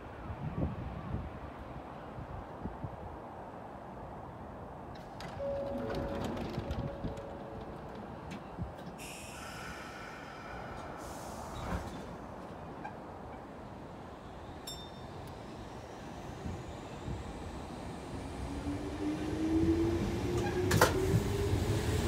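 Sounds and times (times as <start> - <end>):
train doors closing with a hiss: 5.0 - 18.3, 20.3 - 22.0.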